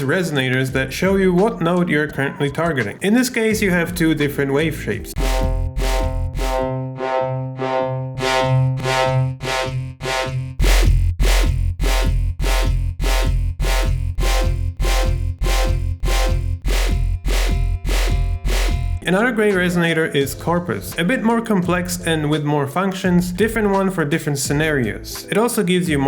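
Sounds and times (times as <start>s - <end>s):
looped percussive hits with resonance: 5.2s - 6.8s, 8.2s - 19.8s.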